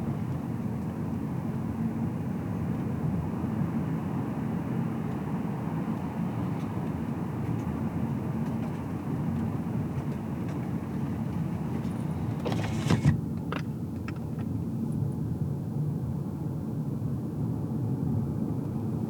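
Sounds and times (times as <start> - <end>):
road noise hiss: 0.0 - 14.4
low rumble of tyres and engine: 0.0 - 19.0.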